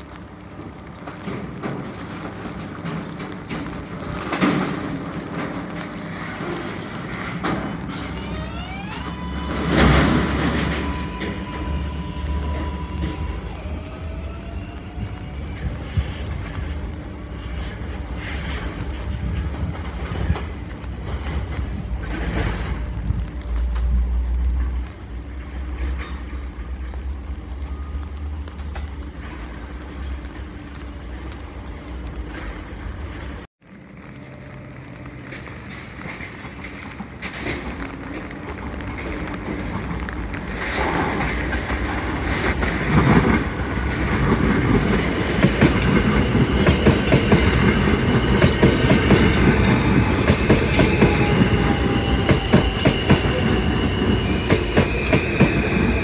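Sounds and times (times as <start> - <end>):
subway electric motor whine: 0.0 - 21.0, 38.5 - 56.0
train wheels rumbling: 0.0 - 56.0.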